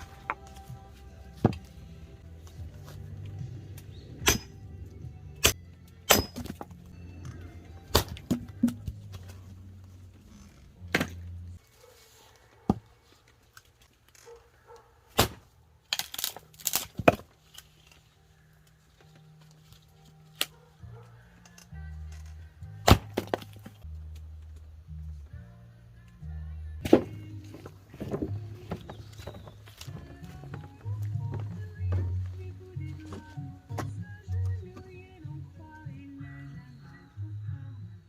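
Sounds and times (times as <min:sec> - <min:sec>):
background music: 0:00.0 - 0:13.1, 0:14.4 - 0:38.0
chopping wood knocks: 0:22.8 - 0:23.7, 0:26.8 - 0:29.4.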